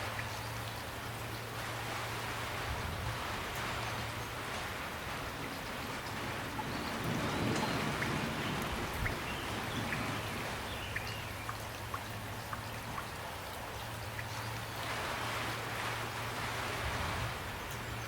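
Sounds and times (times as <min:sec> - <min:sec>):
rain falling: 0:00.0 - 0:18.0
drops ticking: 0:10.7 - 0:14.7.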